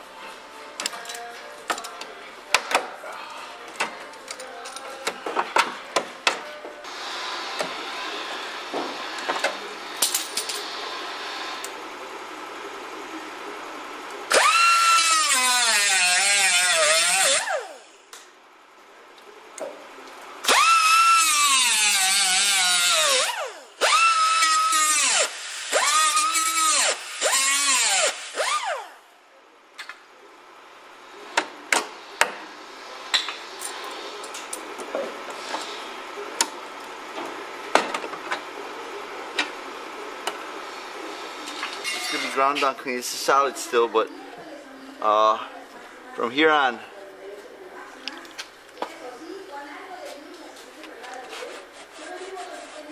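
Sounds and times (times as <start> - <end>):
power tool whining on metal: 14.3 - 17.8, 20.4 - 29.0.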